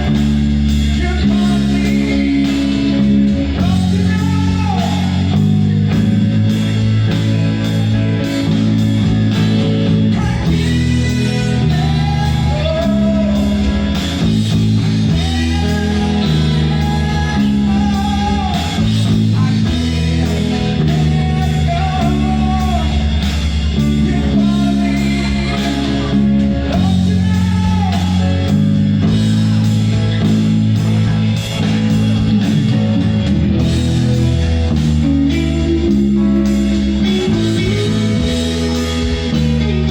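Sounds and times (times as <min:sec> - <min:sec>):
person singing: 0:00.0 - 0:06.6, 0:09.5 - 0:29.2, 0:35.0 - 0:39.9
rock band playing: 0:00.0 - 0:39.9.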